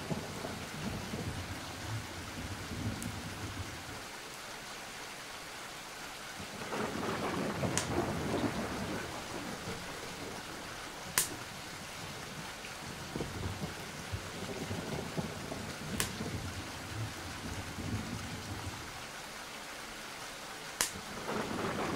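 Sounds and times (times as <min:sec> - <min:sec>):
rumble of thunder: 0:00.0 - 0:04.1, 0:06.4 - 0:19.0, 0:21.0 - 0:21.9
steady rain: 0:00.0 - 0:21.9
sharp thunder cracks: 0:06.4 - 0:10.6, 0:21.0 - 0:21.9.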